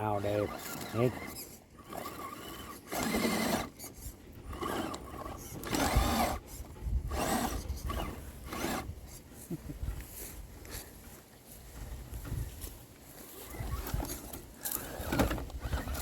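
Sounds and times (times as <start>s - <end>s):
tyres scraping over rock: 0.0s - 9.0s, 12.6s - 16.0s
toy car drivetrain whirring: 0.0s - 9.4s, 13.2s - 16.0s.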